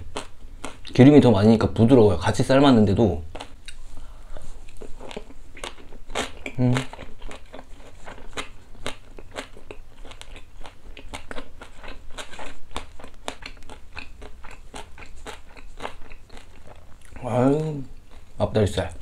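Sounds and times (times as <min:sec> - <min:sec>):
crunchy chewing: 0:03.3 - 0:18.4
wet mouth clicks: 0:03.4 - 0:03.8.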